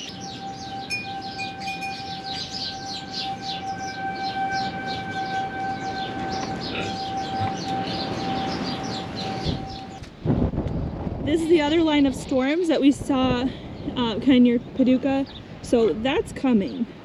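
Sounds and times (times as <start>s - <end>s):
warning siren steady tone: 0.0s - 10.0s
small birds chirping: 0.0s - 10.1s, 13.7s - 17.0s.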